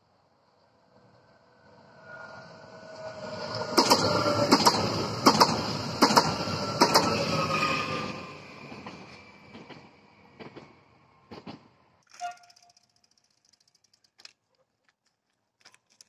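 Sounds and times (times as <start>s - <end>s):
electric train passing: 0.0s - 12.0s
wheels clacking over rail joint: 3.6s - 7.2s.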